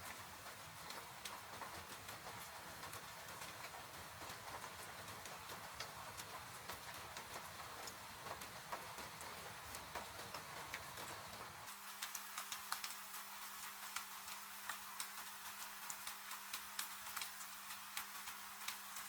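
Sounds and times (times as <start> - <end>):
rain falling: 0.0 - 19.0
wood fire crackling and popping: 10.7 - 19.0.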